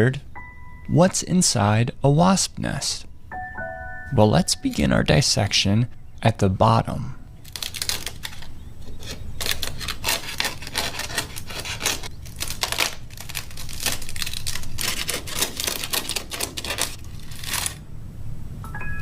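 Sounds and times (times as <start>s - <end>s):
paper nest crackling and tearing: 7.4s - 17.8s.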